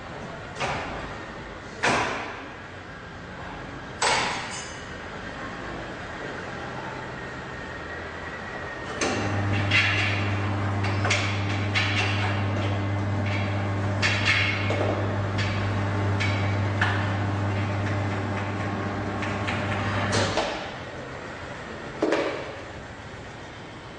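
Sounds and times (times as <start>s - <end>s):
electric motor humming: 14.9s - 20.1s.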